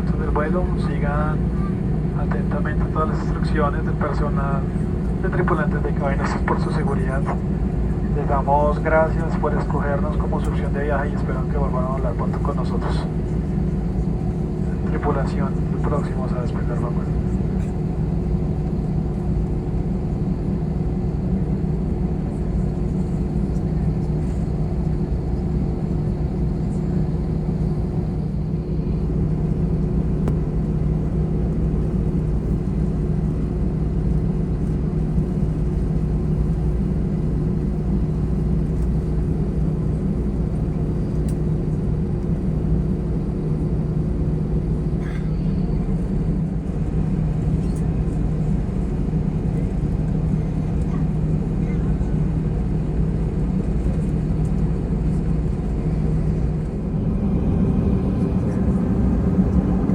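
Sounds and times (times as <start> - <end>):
jet engines low rumble: 0.0 - 59.9
even hum: 55.2 - 59.9.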